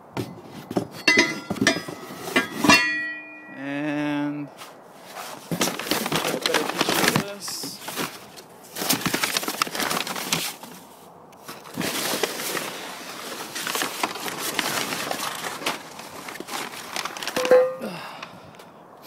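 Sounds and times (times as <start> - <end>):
handling clicks and knocks: 0.0 - 3.6, 13.6 - 17.9
packaging rustling and crinkling: 4.6 - 18.3.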